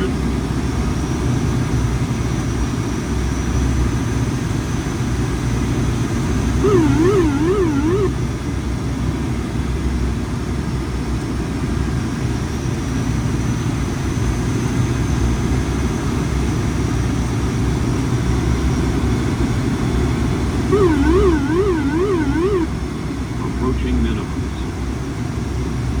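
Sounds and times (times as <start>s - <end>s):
turboprop engines running: 6.5s - 8.2s, 20.6s - 22.8s
warbling electronic tone: 6.6s - 8.2s, 20.7s - 22.7s.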